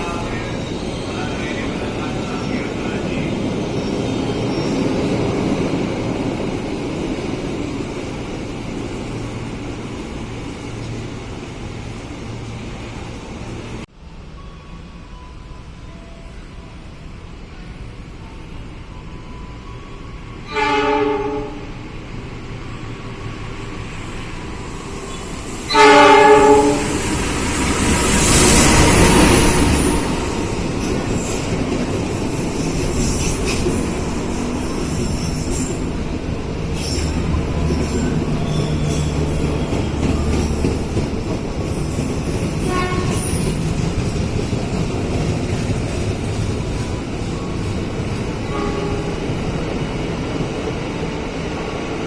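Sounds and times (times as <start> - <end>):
train rumbling and rattling: 0.0 - 52.0
train horn blast: 20.4 - 21.8, 25.7 - 27.3, 42.5 - 43.5, 48.4 - 49.3
high-pitched wheel squeal: 36.8 - 41.0, 41.7 - 43.8.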